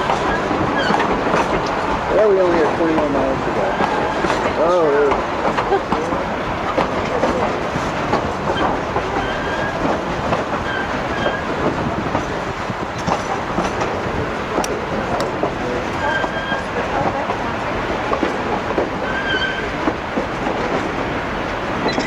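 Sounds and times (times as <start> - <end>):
wheels clicking over rails: 0.0 - 17.5
railway coach rumbling: 0.0 - 22.0.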